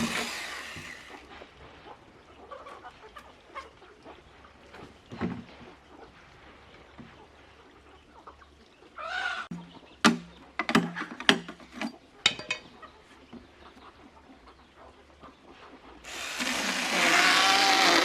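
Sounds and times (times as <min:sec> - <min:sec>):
chickens clucking: 0:00.8 - 0:04.9, 0:07.1 - 0:16.0
sharp knocks: 0:09.5 - 0:11.6.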